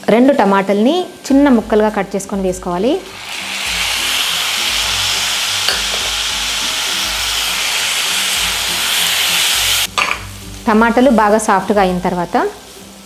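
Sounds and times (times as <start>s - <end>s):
vegetables sizzling in hot fat: 0.0s - 13.0s.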